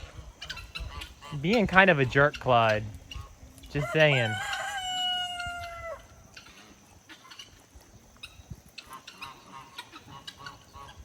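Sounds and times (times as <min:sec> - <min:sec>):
faint chicken calls: 0:03.0 - 0:11.0
rooster crowing: 0:03.8 - 0:06.2.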